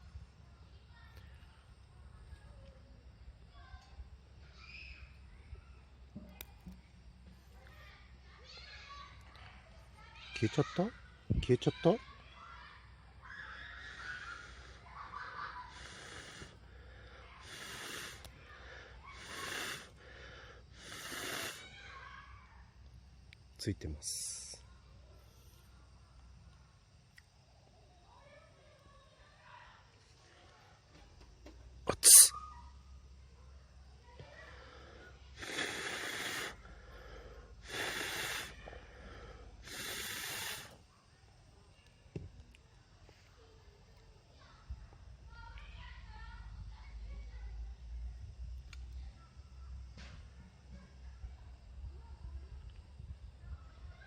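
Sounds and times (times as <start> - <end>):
person blowing hissing puffs: 13.8 - 14.8, 15.6 - 21.7, 31.9 - 32.4, 34.6 - 40.8.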